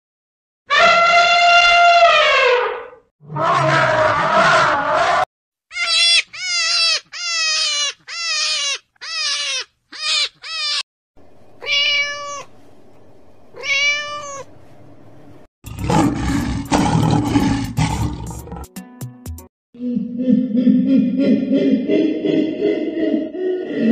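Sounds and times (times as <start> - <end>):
harsh animal calls: 0.7 - 10.8, 15.7 - 18.7, 19.8 - 23.9
long held animal calls: 0.7 - 10.8
short falling animal cries: 0.7 - 10.8.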